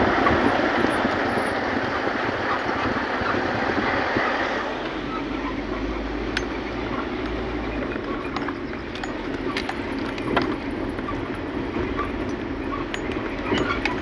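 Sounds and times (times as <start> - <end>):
moving vehicle noise: 0.0 - 14.0
light rattles and clicks: 6.3 - 14.0.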